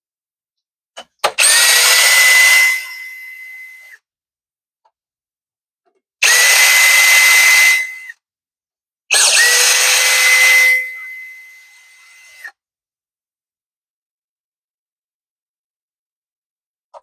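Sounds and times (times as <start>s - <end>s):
electric power tool whining: 1.2s - 4.0s, 6.2s - 8.2s, 9.1s - 12.5s.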